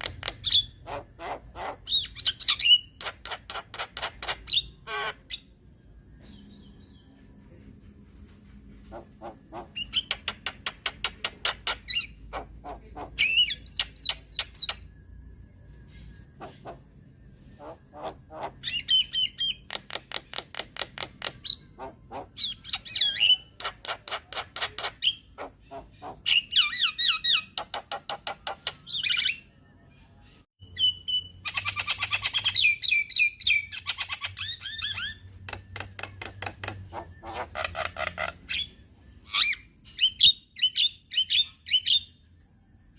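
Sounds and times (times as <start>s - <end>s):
myna singing clicks and squawks: 0.0s - 5.5s, 8.9s - 14.9s, 16.4s - 17.0s, 17.6s - 29.4s, 30.8s - 42.0s.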